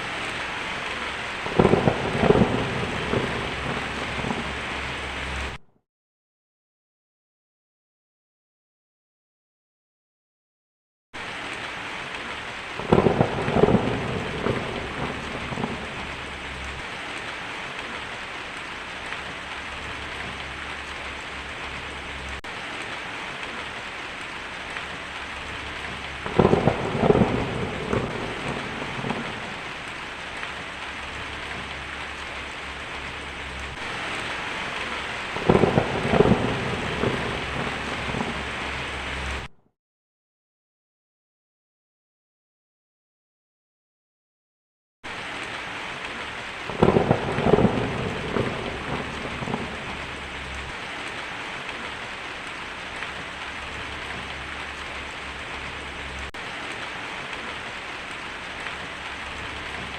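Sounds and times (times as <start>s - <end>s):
heavy rain on a tin roof: 0.0s - 5.6s, 11.2s - 39.5s, 45.0s - 59.9s
thunder rolling: 1.0s - 5.6s, 12.8s - 17.0s, 24.9s - 39.5s, 46.7s - 50.8s.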